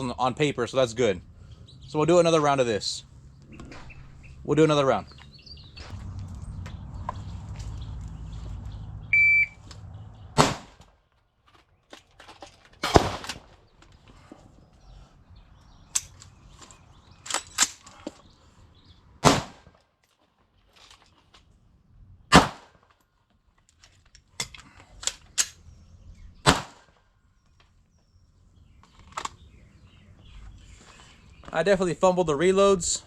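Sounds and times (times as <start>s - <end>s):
gunshots: 10.4s - 10.8s, 12.8s - 13.5s, 19.2s - 19.7s, 22.3s - 22.8s, 26.4s - 26.9s.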